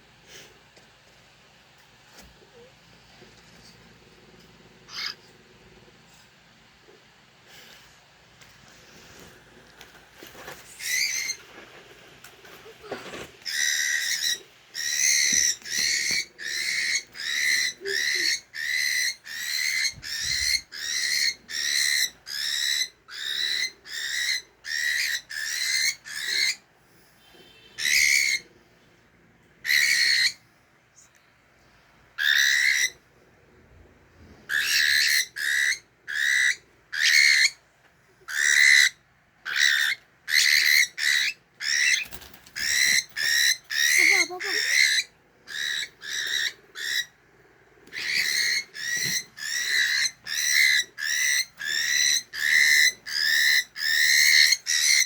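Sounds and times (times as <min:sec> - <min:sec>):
cockatiel shrill calls: 0:10.8 - 0:11.4, 0:13.5 - 0:26.6, 0:27.7 - 0:28.4, 0:29.6 - 0:30.4, 0:32.2 - 0:33.0, 0:34.5 - 0:37.6, 0:38.3 - 0:47.1, 0:47.9 - 0:55.0.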